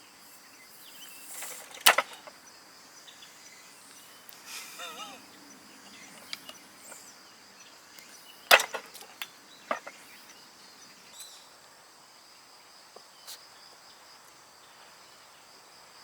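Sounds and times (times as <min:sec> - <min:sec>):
smaller cracks and knocks: 0:01.4 - 0:02.4, 0:08.5 - 0:10.0.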